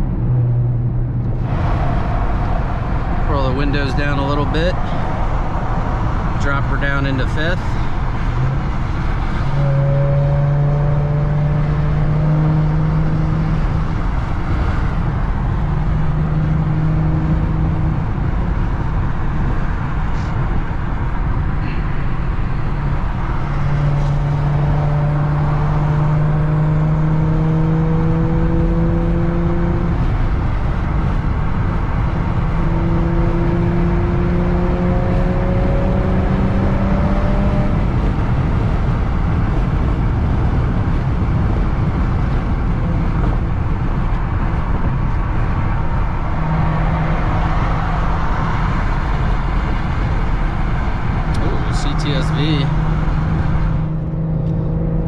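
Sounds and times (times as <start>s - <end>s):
car exhaust drone: 0.0s - 55.0s
road and wind noise: 0.0s - 55.0s.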